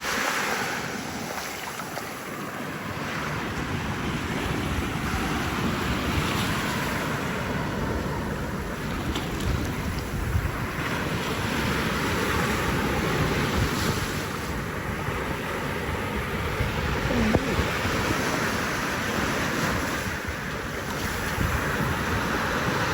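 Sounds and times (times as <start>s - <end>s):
ocean surf washing: 0.0s - 22.9s
wind buffeting microphone: 2.8s - 22.9s.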